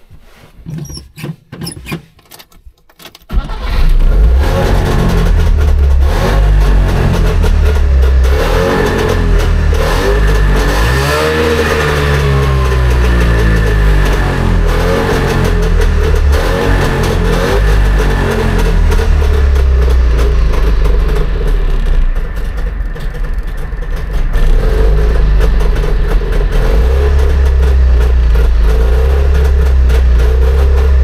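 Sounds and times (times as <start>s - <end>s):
engine starter clicks: 0.9s - 4.2s
two-stroke car engine revving: 3.3s - 31.0s.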